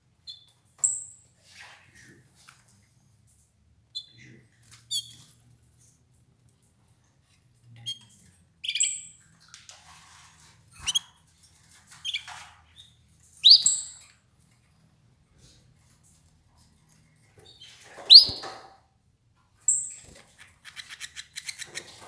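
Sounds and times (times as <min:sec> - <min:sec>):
canaries chirping: 0:04.9 - 0:05.2, 0:10.8 - 0:11.0, 0:12.0 - 0:14.0, 0:17.5 - 0:18.6.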